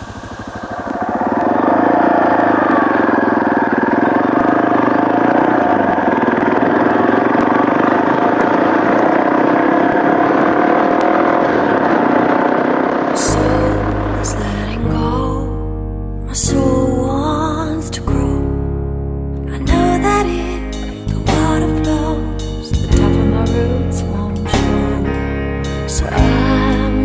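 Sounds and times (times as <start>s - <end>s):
motorcycle engine running: 0.0s - 14.7s.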